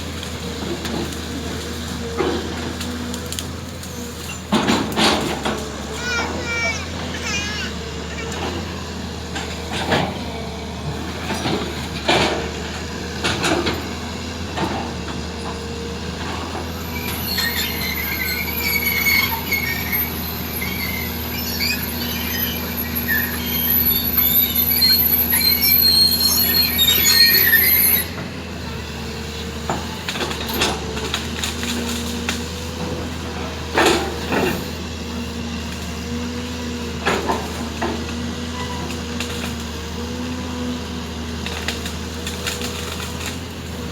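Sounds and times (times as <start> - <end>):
heavy diesel machinery running: 0.0 - 43.9
high metallic squeal: 16.8 - 28.3.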